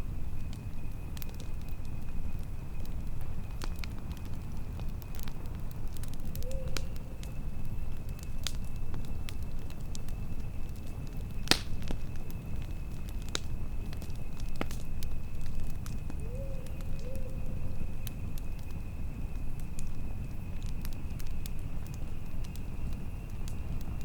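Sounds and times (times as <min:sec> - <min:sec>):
campfire crackling and snapping: 0:00.0 - 0:24.0
low fire rumble: 0:00.0 - 0:24.0
loud fire pop: 0:11.5 - 0:11.8.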